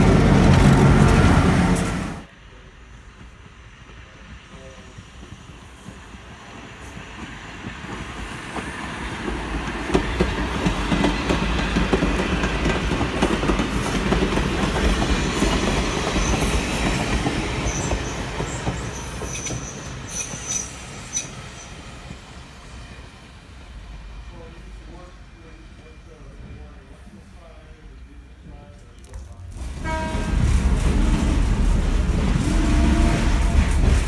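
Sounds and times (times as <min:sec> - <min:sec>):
train wheels rumbling on rails: 0:00.0 - 0:34.0
train wheels squealing: 0:15.1 - 0:21.8.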